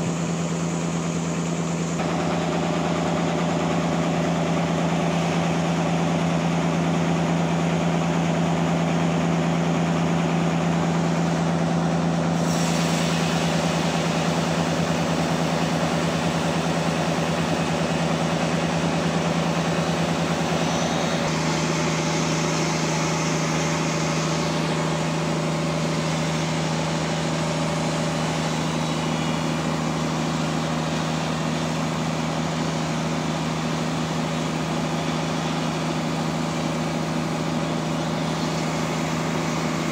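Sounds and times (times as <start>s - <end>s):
sawmill machinery engine hum: 0.0s - 39.9s
bright hiss: 12.4s - 16.1s.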